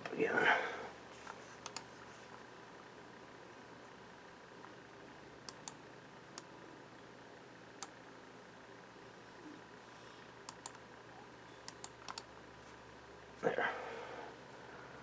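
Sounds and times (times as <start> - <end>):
computer control clicks: 1.6 - 1.9, 5.4 - 6.5, 10.4 - 10.8, 11.6 - 12.3.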